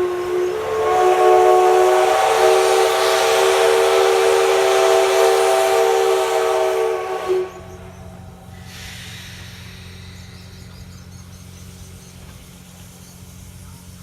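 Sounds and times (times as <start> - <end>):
steam locomotive whistle: 0.0 - 10.7
steam hissing: 0.0 - 14.0.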